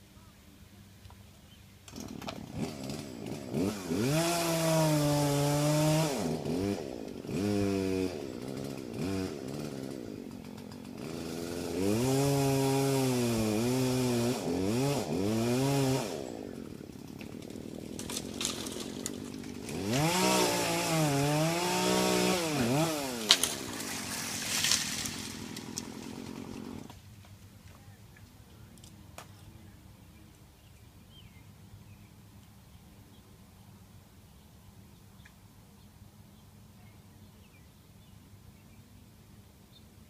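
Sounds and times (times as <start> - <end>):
chainsaw revving and idling: 1.9 - 27.0.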